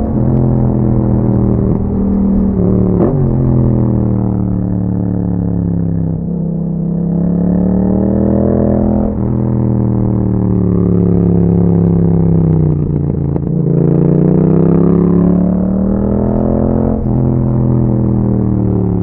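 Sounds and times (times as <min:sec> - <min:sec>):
exhaust crackle: 0:00.0 - 0:07.2, 0:08.7 - 0:14.0
motorcycle engine accelerating: 0:00.0 - 0:19.0.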